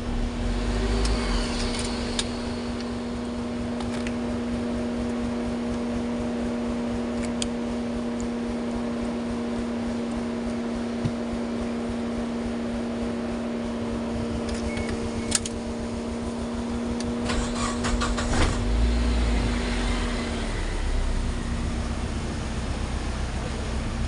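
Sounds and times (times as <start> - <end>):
car engine running: 0.0 - 24.0
steady hum: 0.0 - 24.0
ignition key switch clicks: 14.4 - 15.6.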